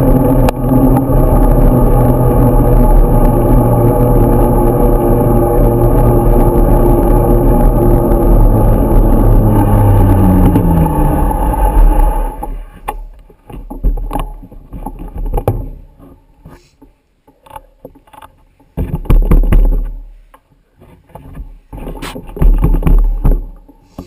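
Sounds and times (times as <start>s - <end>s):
wind noise: 0.0s - 12.9s
vehicle engine slowing: 0.0s - 13.3s
scattered knocks: 18.8s - 19.9s, 22.0s - 23.6s.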